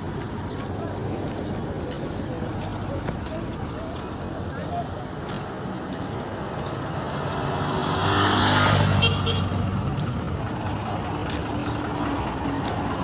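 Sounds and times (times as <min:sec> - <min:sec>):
traffic noise: 0:00.0 - 0:13.0
vehicle engine passing close: 0:06.3 - 0:13.0.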